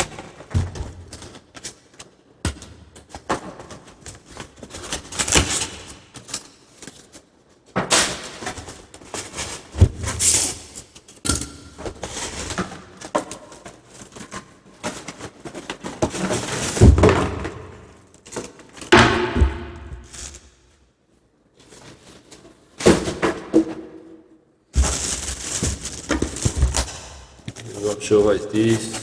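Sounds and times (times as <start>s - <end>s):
packaging rustling and crinkling: 3.6s - 7.7s, 11.9s - 18.9s, 19.9s - 20.6s, 24.7s - 29.0s.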